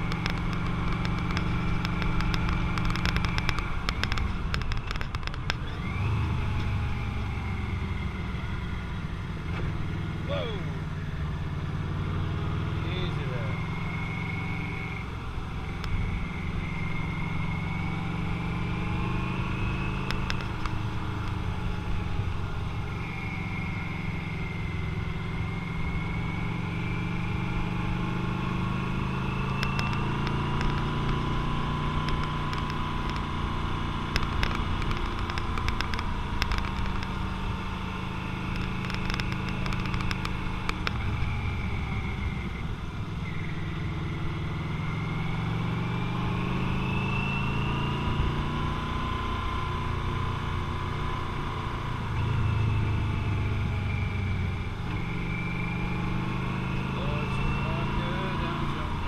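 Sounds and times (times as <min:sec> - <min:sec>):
sharp clicks: 0:00.0 - 0:05.9, 0:20.0 - 0:21.4, 0:29.5 - 0:31.3, 0:31.9 - 0:33.4, 0:34.0 - 0:37.2, 0:38.5 - 0:41.4
motorcycle engine running: 0:00.0 - 0:46.5.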